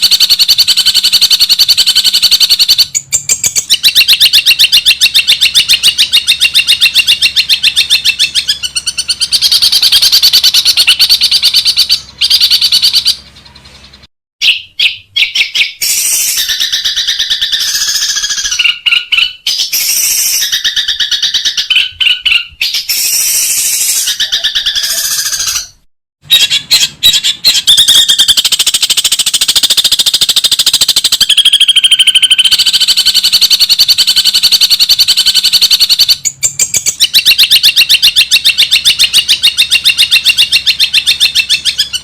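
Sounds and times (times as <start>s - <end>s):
bird chattering: 0.0s - 42.0s.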